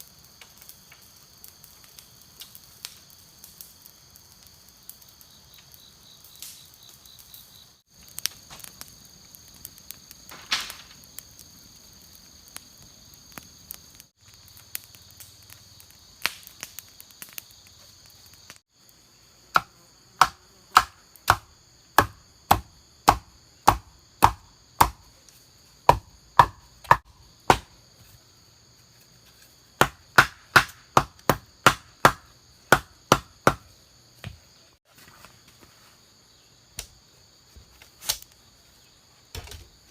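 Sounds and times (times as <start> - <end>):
insects droning: 0.0 - 39.9
chopping bamboo: 19.5 - 25.1, 25.8 - 27.8, 29.8 - 34.4.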